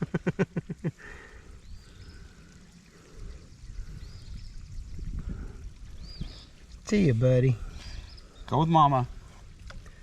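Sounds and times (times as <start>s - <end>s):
waterfall running into pool: 0.0s - 4.0s.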